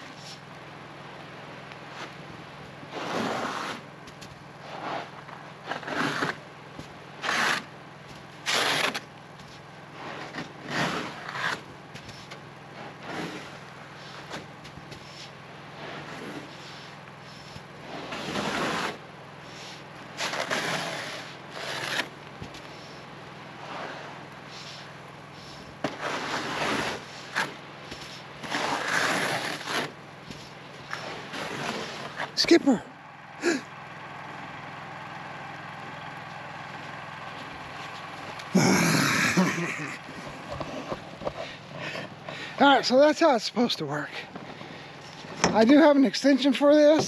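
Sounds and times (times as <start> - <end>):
steady low hum: 0.0 - 47.0
snow sliding off tent fabric: 2.9 - 3.8, 4.6 - 6.3, 9.9 - 11.5, 17.8 - 22.1, 23.6 - 24.9, 25.9 - 30.0
tent fabric pushed: 2.9 - 3.8, 30.9 - 32.4.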